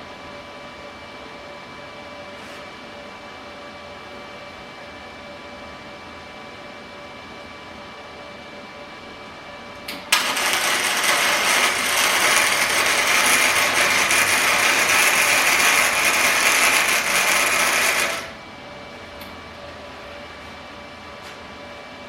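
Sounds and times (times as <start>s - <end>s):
welding arc crackling: 10.1s - 18.4s.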